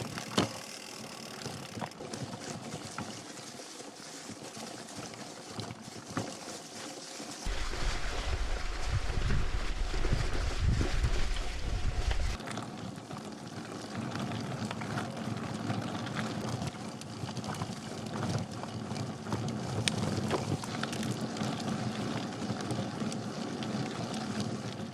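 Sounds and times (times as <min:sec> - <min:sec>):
stones ticking and bike rattling: 0:00.0 - 0:24.9
bike tyres rolling on gravel: 0:07.3 - 0:24.9
wind on microphone: 0:07.5 - 0:12.4.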